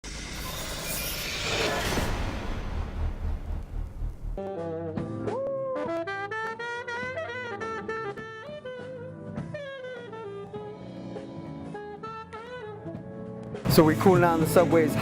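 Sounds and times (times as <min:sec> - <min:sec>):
drums: 0:00.0 - 0:05.4, 0:13.6 - 0:15.0
saxophone melody: 0:04.4 - 0:13.3.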